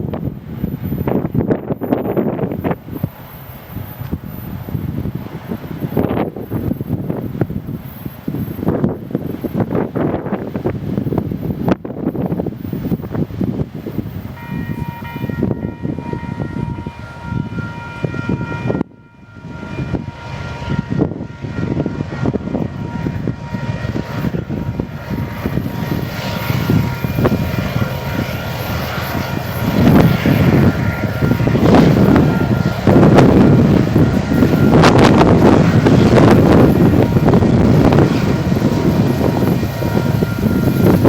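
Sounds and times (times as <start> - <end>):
freight train passing: 0.0 - 41.0
wind buffeting microphone: 0.0 - 41.0
faint high whine: 22.8 - 41.0.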